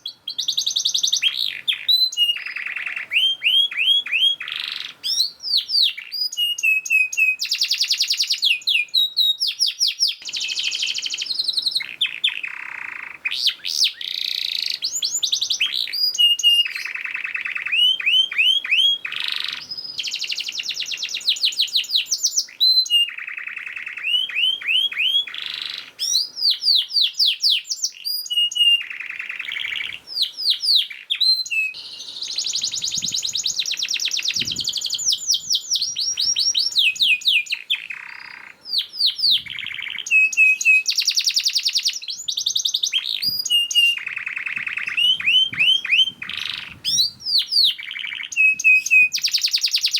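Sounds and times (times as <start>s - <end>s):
canary singing trills: 0.0s - 49.9s.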